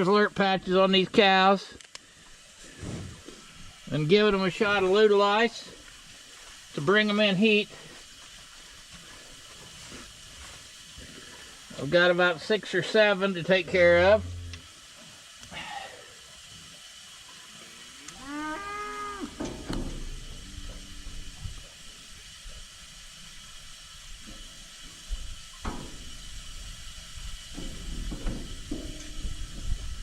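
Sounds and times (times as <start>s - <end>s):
cow mooing: 13.7s - 14.7s, 17.8s - 21.4s.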